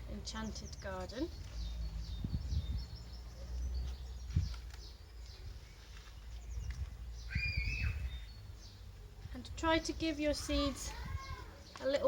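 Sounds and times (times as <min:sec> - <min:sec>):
birds chirping: 0:00.0 - 0:12.0
low rumble on microphone: 0:00.7 - 0:04.6.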